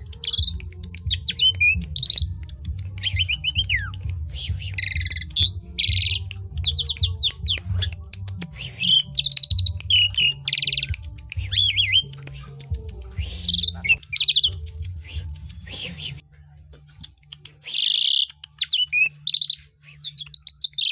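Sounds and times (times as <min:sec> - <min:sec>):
starling singing: 0:00.0 - 0:16.2, 0:17.0 - 0:20.9
steady low hum: 0:00.0 - 0:17.6.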